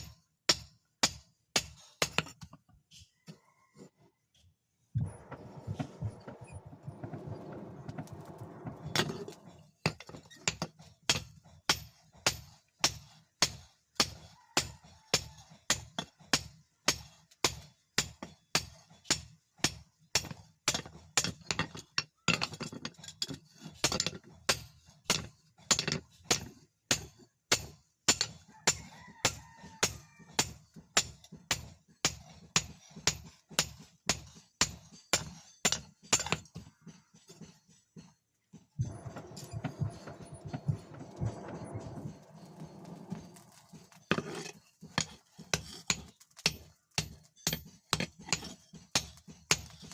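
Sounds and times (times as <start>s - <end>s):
steady rushing noise: 5.0s - 9.6s, 38.8s - 44.2s.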